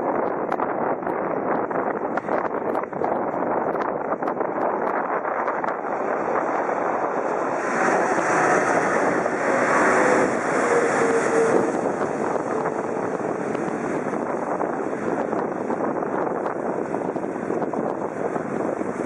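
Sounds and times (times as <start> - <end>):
jet engine roar: 0.0 - 19.0
jet engine whine: 0.0 - 19.0
wind buffeting microphone: 0.0 - 19.0.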